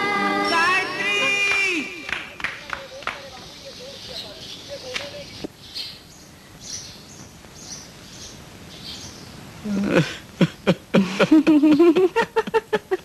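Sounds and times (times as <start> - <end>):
sparrows chirping: 2.3 - 9.6, 11.6 - 12.1.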